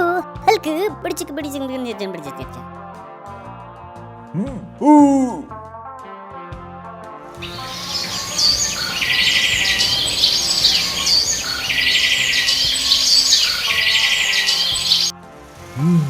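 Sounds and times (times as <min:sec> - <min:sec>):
birds chirping and trilling: 0:07.4 - 0:16.0.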